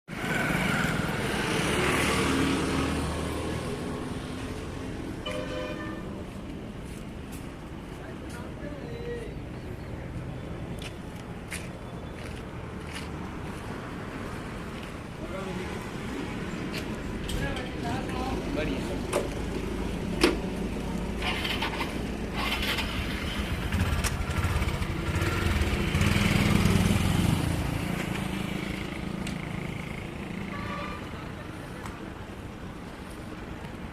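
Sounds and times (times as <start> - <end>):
tractor diesel engine running: 21.2 - 24.9.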